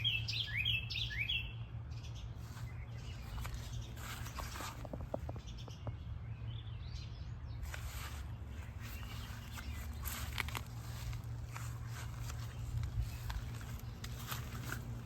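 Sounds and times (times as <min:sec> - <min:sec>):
bird calling: 0:00.0 - 0:01.6
steady low rumble: 0:01.6 - 0:15.0
footsteps through plants: 0:02.4 - 0:05.2, 0:07.6 - 0:15.0.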